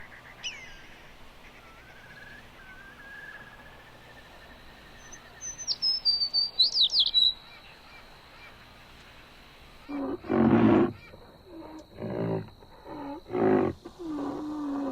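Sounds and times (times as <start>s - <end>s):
bird whistles: 0.0s - 1.0s, 1.6s - 7.4s
high bird chirps: 0.0s - 7.8s.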